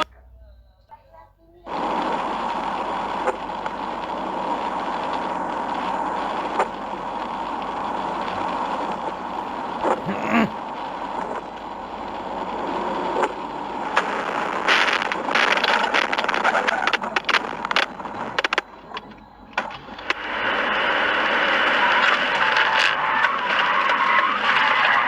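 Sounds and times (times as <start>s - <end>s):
road and tyre noise: 21.9s - 25.0s.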